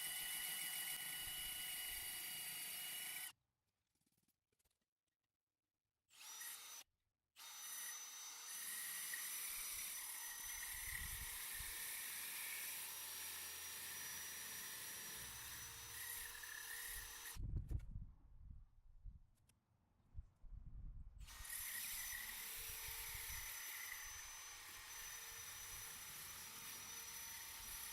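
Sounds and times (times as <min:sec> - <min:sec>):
power drill grinding into brick: 0:00.0 - 0:03.3, 0:07.4 - 0:17.4, 0:21.2 - 0:27.9.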